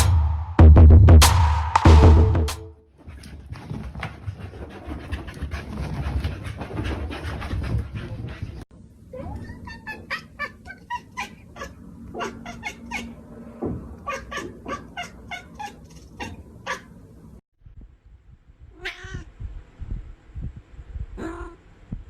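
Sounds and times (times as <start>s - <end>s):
cat meowing: 9.1s - 13.2s, 14.0s - 16.9s, 18.8s - 19.3s, 21.2s - 21.6s.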